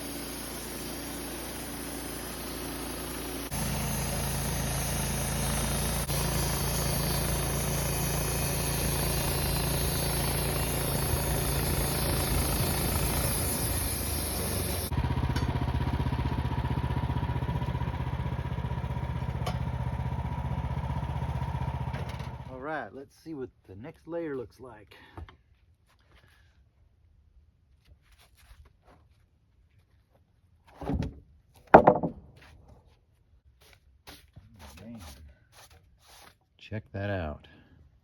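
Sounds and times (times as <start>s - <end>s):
gas engine running: 0.0s - 22.5s
band saw cutting log: 0.0s - 22.6s.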